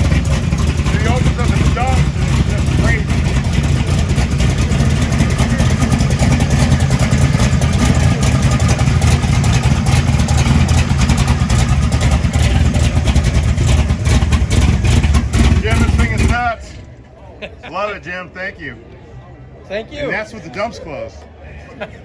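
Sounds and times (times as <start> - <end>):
vee-eight engine running loud: 0.0 - 17.1.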